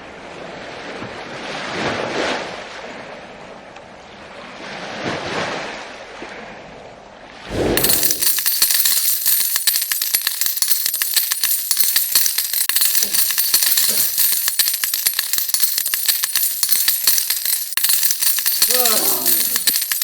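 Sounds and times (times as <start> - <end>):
coins clattering and jingling: 7.8 - 20.0.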